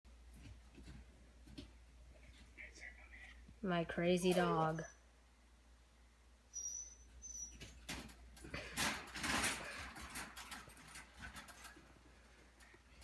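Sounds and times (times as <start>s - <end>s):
high squeaks: 6.6s - 7.9s
dog scrabbling in cage: 7.6s - 11.9s.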